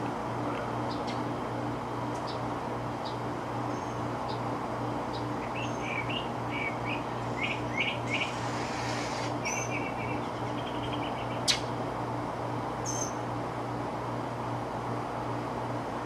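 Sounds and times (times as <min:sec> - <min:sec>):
steady low hum: 0:00.0 - 0:16.0
birds chirping: 0:00.8 - 0:01.3, 0:02.2 - 0:11.8, 0:12.8 - 0:13.2.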